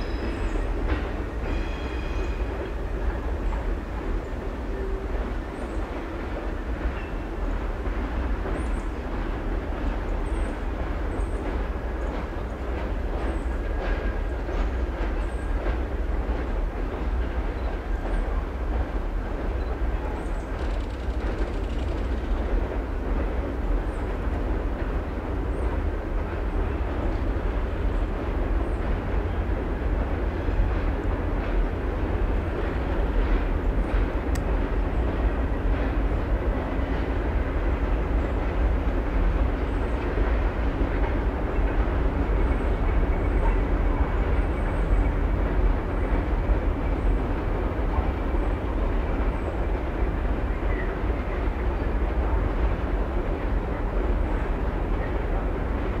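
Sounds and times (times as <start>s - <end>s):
train wheels rumbling on rails: 0.0s - 56.0s
faint clicks: 20.4s - 22.4s.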